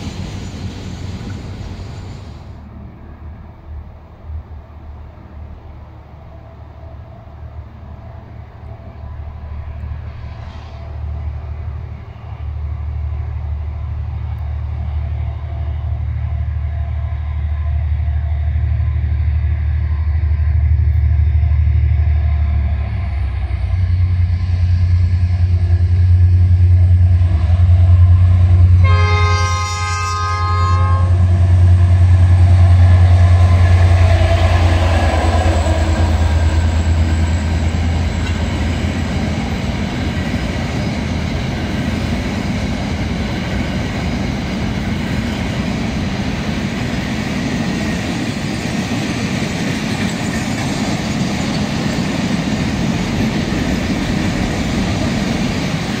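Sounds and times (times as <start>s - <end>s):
diesel locomotive engine drone: 0.0s - 56.0s
train horn blast: 28.0s - 31.4s
wagons wheel-on-rail noise: 32.2s - 56.0s.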